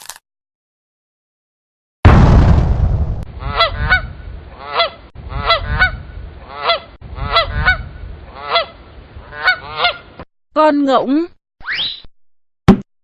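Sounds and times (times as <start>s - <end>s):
loud sudden noise: 2.1s - 3.3s
low rumble: 2.1s - 4.5s
goose honking: 3.4s - 10.1s.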